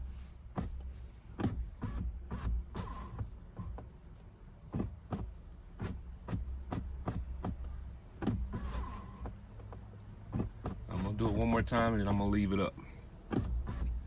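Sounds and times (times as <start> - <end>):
power window motor hum: 4.7 - 12.5.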